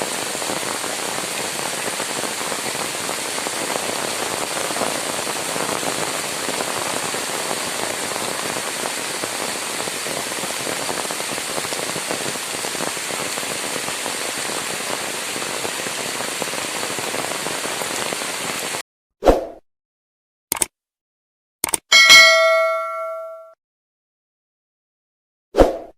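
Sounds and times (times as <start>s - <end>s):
heavy rain falling: 0.0s - 18.8s.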